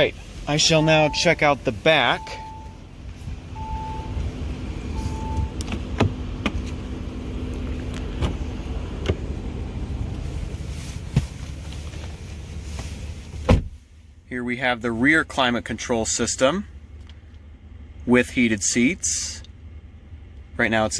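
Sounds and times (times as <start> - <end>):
low steady hum: 0.0 - 20.9
electronic chime beeps: 0.8 - 1.4, 3.6 - 4.2
car door clicks and knocks: 5.6 - 6.6, 13.4 - 13.8.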